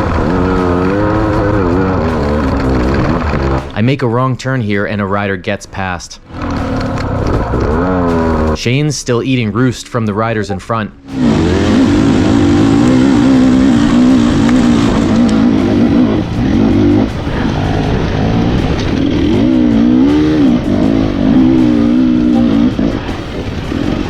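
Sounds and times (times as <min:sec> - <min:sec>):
dirt bike engine revving: 0:00.0 - 0:03.8, 0:06.2 - 0:08.6, 0:11.0 - 0:24.0.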